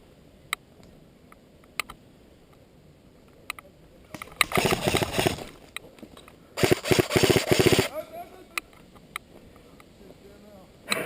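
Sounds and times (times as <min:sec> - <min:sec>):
airsoft gun full-auto burst: 0:04.2 - 0:05.6, 0:06.6 - 0:08.0.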